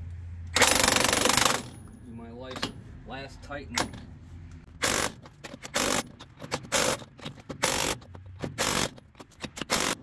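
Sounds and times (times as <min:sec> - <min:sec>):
impact wrench bursts: 0:00.5 - 0:01.8, 0:04.8 - 0:10.0.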